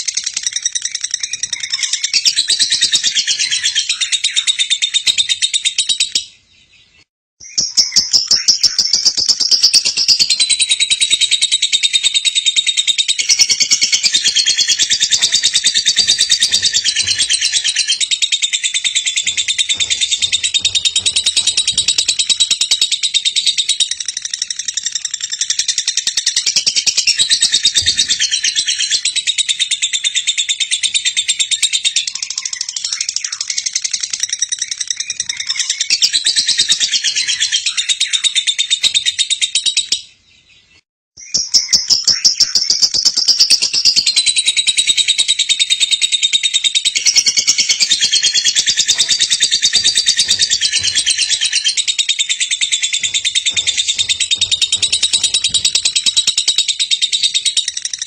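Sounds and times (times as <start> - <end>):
lovebird chattering: 7.6 - 25.8, 46.8 - 58.0.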